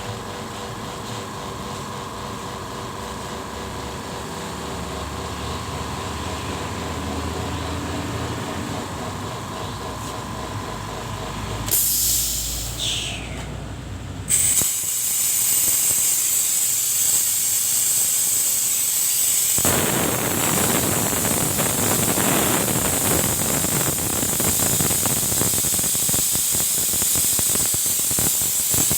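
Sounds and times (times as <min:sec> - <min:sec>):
compressed air hissing: 0:11.6 - 0:13.6, 0:14.3 - 0:28.9.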